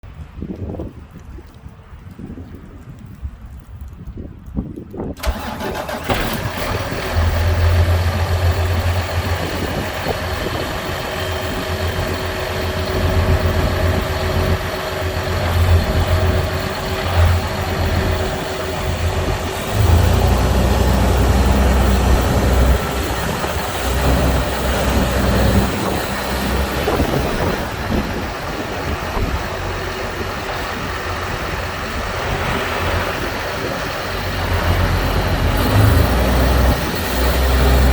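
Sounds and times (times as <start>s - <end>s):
tractor diesel engine idling: 5.2s - 37.9s.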